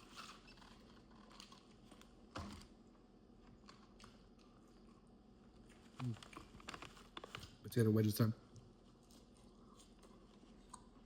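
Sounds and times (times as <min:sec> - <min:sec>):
faint chewing: 0:03.4 - 0:07.4, 0:08.6 - 0:11.0.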